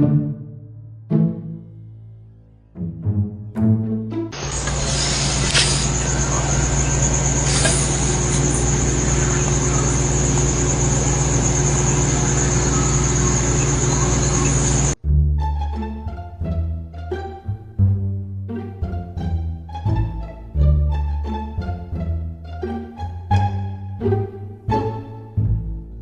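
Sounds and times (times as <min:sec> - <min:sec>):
mechanical hum and whine: 0:04.4 - 0:15.0.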